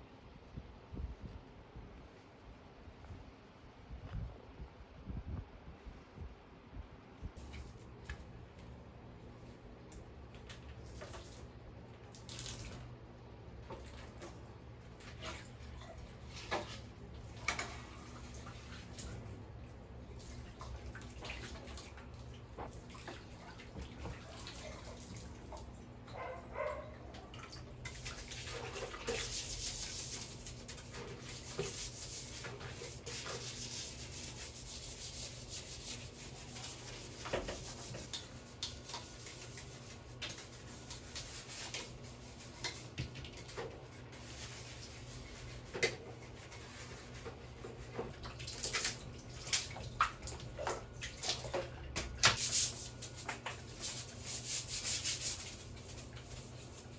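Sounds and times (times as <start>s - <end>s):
water running: 13.6s - 56.9s
scrubbing: 20.1s - 51.7s, 52.4s - 56.9s.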